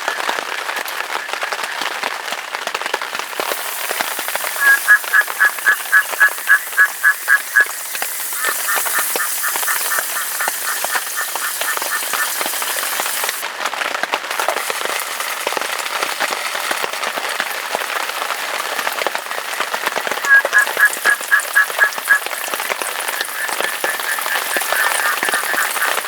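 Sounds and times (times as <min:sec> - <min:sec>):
steady rain pattering: 0:00.0 - 0:26.0
frog calling in pulsed notes: 0:03.9 - 0:13.0, 0:20.2 - 0:26.0.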